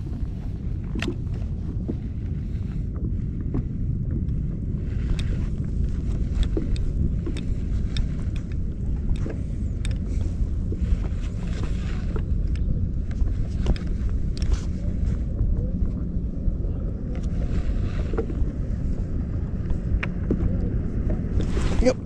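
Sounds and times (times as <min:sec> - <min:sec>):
wind buffeting microphone: 0:00.0 - 0:22.0
small clicks and ticks: 0:03.5 - 0:15.2.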